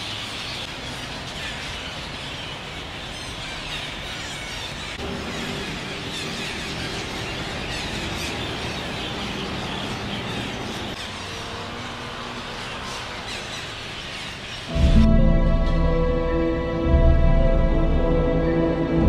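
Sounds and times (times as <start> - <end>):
parakeets screeching: 0.0 - 14.8.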